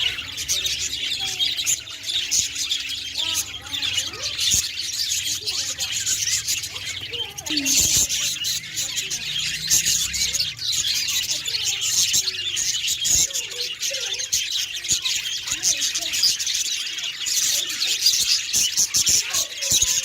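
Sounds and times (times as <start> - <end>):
parrots chirping and squawking: 0.0 - 20.0.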